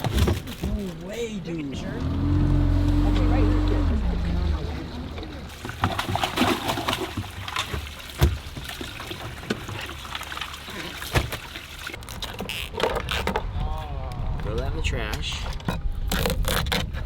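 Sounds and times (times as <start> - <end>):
water trickling and splashing: 0.0 - 12.7.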